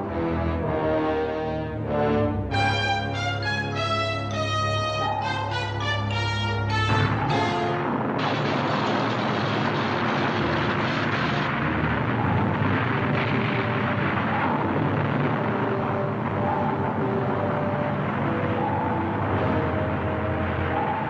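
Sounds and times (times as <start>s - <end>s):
orchestral music: 0.0s - 9.1s, 12.6s - 21.0s
loud rushing noise: 6.8s - 21.0s.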